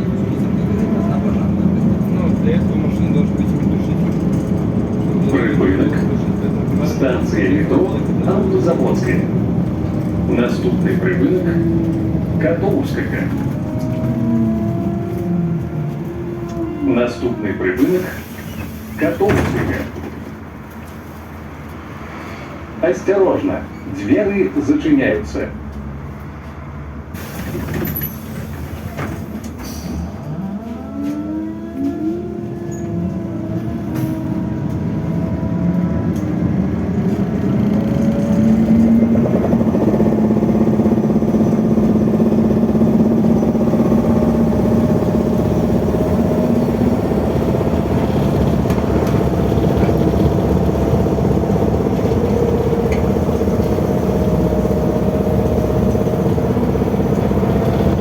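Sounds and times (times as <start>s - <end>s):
road rumble: 0.0s - 58.0s.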